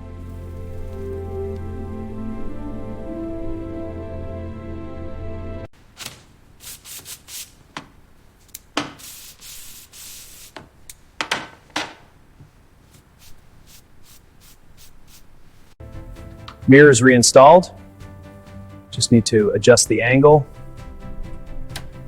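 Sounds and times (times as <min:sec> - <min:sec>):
hissing swish: 0:05.9 - 0:07.7, 0:09.0 - 0:10.6, 0:12.9 - 0:15.8
rubbing strokes on a surface: 0:06.0 - 0:07.8, 0:08.8 - 0:10.7, 0:12.4 - 0:16.4.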